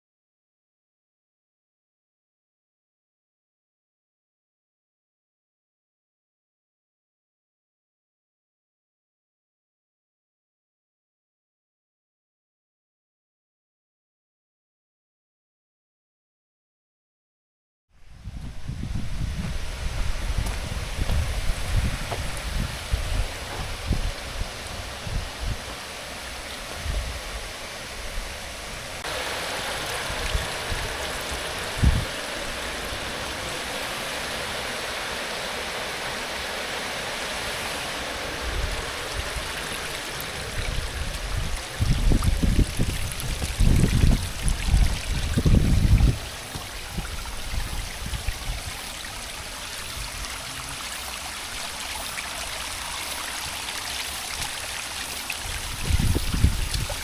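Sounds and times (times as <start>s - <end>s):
rainwater rushing along road: 19.6s - 57.0s.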